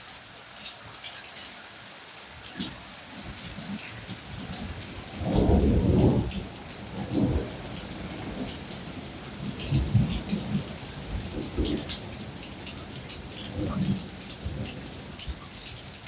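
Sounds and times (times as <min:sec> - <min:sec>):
rain pouring: 0:00.0 - 0:16.0
thunder rumbling: 0:03.4 - 0:16.0.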